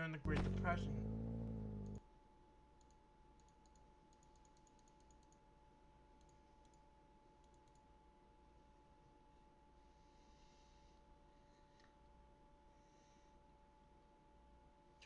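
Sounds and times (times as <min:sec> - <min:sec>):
low hum: 0:00.3 - 0:02.0.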